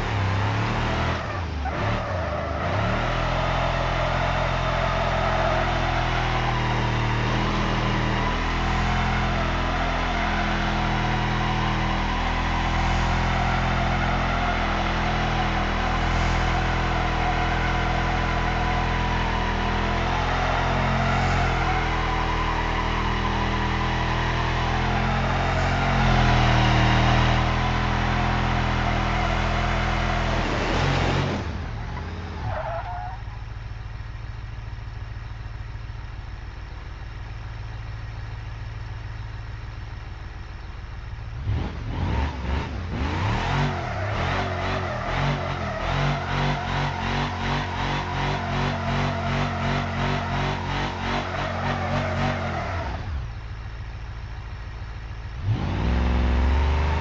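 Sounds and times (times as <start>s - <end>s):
engine revving hard: 2.6s - 31.6s, 41.4s - 53.2s, 55.4s - 57.0s.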